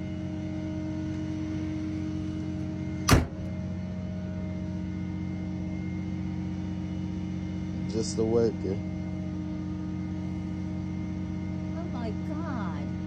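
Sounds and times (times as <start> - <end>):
vehicle engine idling: 0.0 - 13.0
car hood slamming shut: 3.0 - 3.6.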